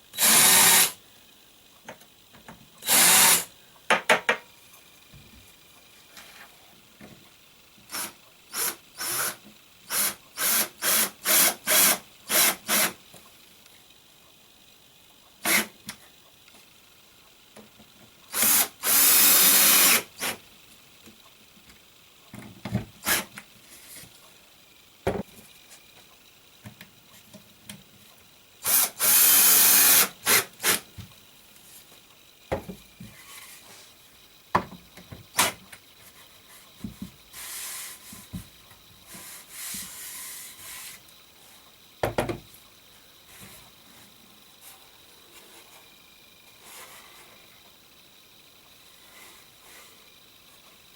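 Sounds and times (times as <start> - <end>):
power drill running: 0.1 - 1.0, 2.8 - 3.5, 7.9 - 13.0, 15.4 - 15.8, 18.3 - 20.4, 23.0 - 23.3, 28.6 - 30.9.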